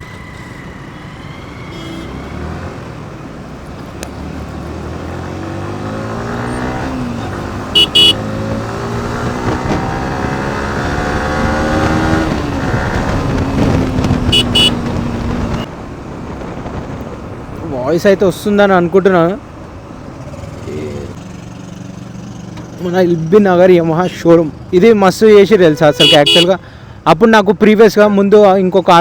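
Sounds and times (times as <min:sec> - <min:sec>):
horn double beeps: 0:00.0 - 0:02.5, 0:07.7 - 0:08.3, 0:14.2 - 0:15.7, 0:25.7 - 0:26.5
motorcycle engine accelerating: 0:04.0 - 0:17.1.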